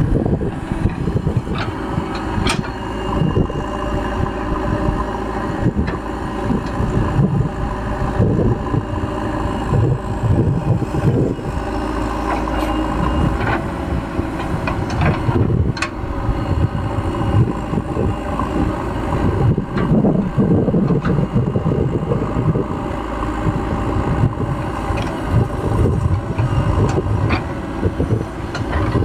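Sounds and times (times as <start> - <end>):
diesel engine running: 0.0 - 29.0
wind buffeting microphone: 0.0 - 29.0.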